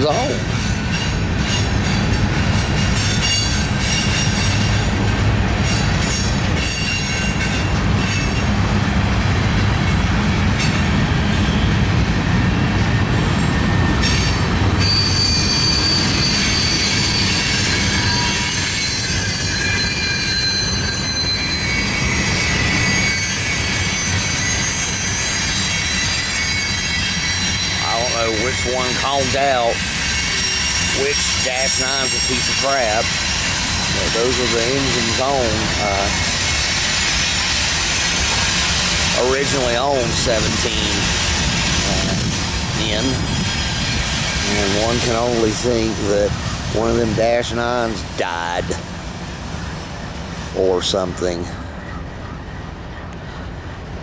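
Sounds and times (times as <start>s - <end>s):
high wheel squeal: 0.0s - 8.6s, 9.8s - 11.8s, 12.4s - 48.8s
train wheels rumbling on rail: 0.0s - 54.0s.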